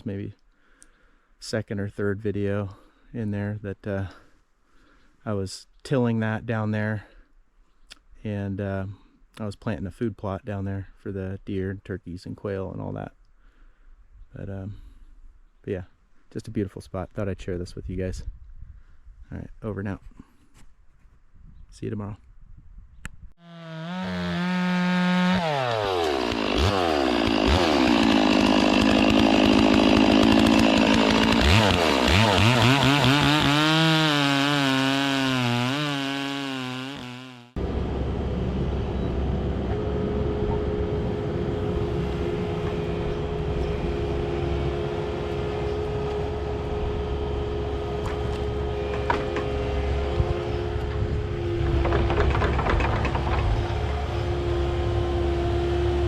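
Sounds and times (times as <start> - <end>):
chainsaw cutting wood: 23.4 - 56.0
machine drone: 37.6 - 56.0.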